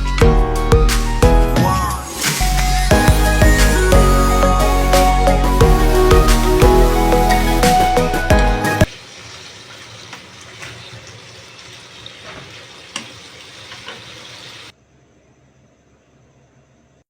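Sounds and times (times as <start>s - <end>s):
background music: 0.0s - 8.9s
food sizzling in a pan: 8.8s - 14.8s.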